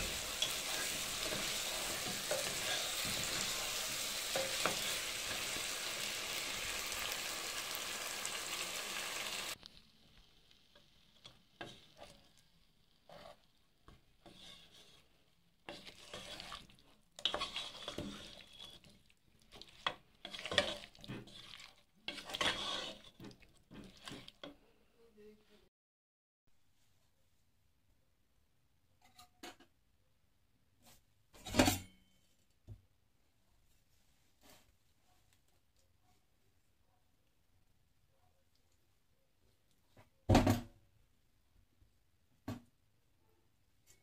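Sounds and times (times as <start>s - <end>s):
wooden spoon scraping a pan: 0.0s - 9.6s, 10.8s - 24.6s
curry sizzling in a frying pan: 0.0s - 24.5s.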